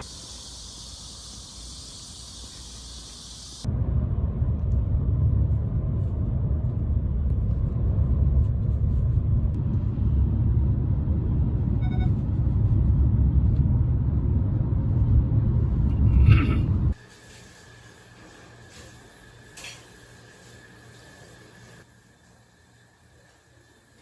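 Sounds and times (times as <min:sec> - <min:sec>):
low rumble: 0:03.6 - 0:17.0.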